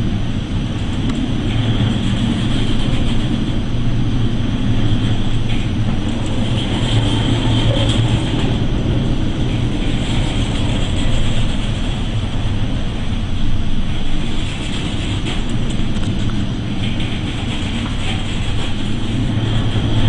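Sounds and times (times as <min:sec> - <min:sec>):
loud vehicle rumble: 0:00.0 - 0:20.0.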